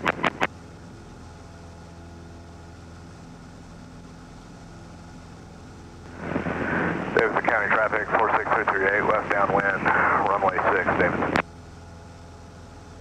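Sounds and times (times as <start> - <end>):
short radio clicks: 0.0 - 0.5
airplane engine droning: 0.0 - 13.0.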